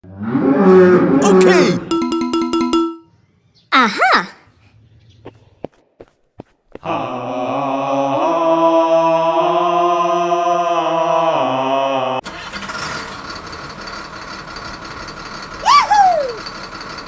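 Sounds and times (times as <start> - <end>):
engine starting and revving: 12.2 - 15.6
rough noisy engine running: 12.3 - 15.7, 16.4 - 17.0.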